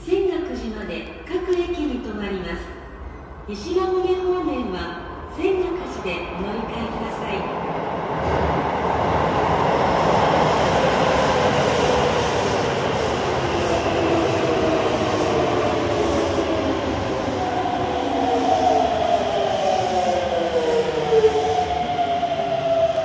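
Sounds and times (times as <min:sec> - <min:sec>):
train wheels rumbling on rail: 0:06.5 - 0:23.0.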